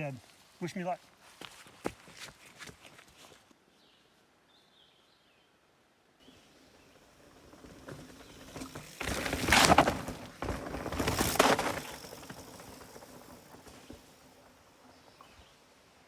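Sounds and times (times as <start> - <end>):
mountain bike rattling on rough trail: 6.5 - 15.6.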